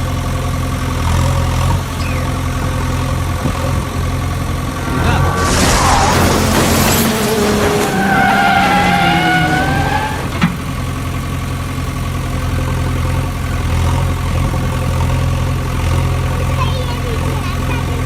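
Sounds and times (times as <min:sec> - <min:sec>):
vehicle engine humming: 0:00.0 - 0:18.0
falling tones: 0:04.3 - 0:10.7.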